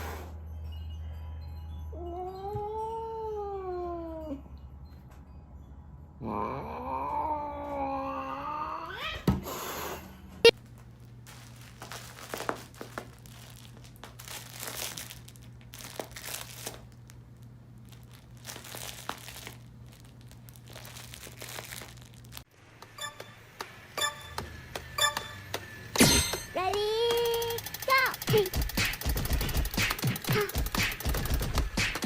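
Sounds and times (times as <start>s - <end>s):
rustling and crinkling: 10.6s - 22.5s.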